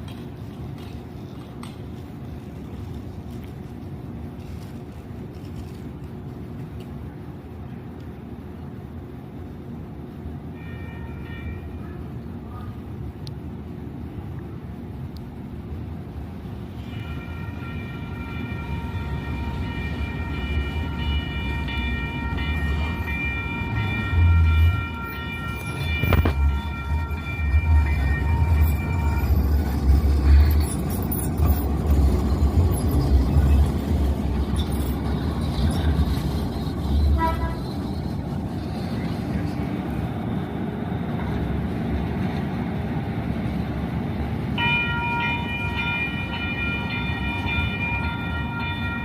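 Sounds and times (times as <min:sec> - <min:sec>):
train passing rumble: 0:00.0 - 0:49.0
train horn chord: 0:10.6 - 0:11.9, 0:16.8 - 0:29.4, 0:37.0 - 0:37.8.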